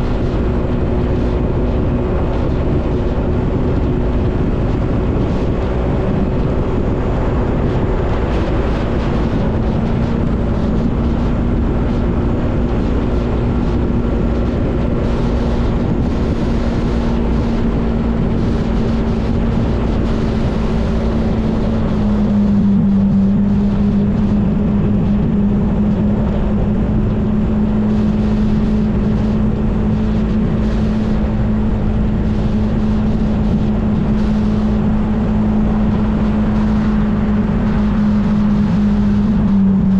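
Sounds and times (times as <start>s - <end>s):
motorbike engine running: 0.0s - 39.9s
rushing noise: 0.0s - 39.9s.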